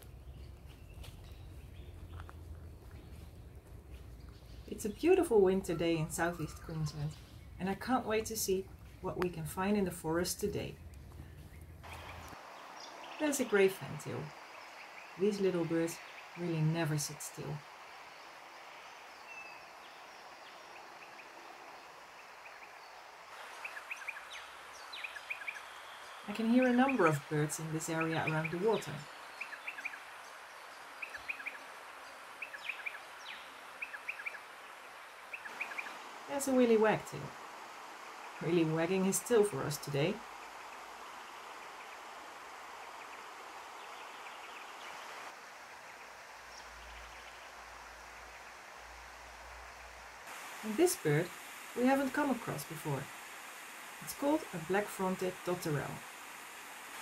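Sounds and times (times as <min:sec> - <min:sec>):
small birds chirping: 0:00.0 - 0:50.0
steady outdoor hiss: 0:00.0 - 0:57.0
creek water rushing: 0:11.8 - 0:57.0.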